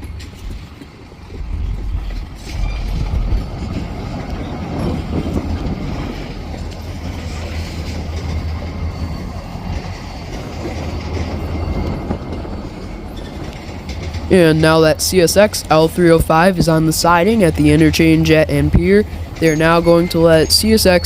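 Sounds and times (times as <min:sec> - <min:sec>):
freight train rumbling by: 0:00.0 - 0:21.0
high wheel squeal: 0:06.2 - 0:14.0, 0:19.1 - 0:21.0.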